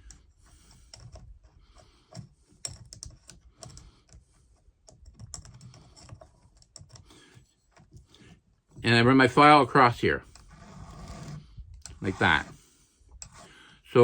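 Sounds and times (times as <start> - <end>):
file and tool clicking on chain: 13.2 - 13.5.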